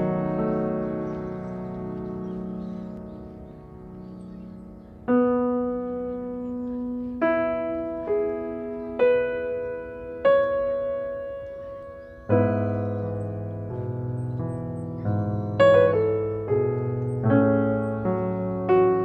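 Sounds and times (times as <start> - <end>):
slow solo piano melody: 0.0 - 19.0.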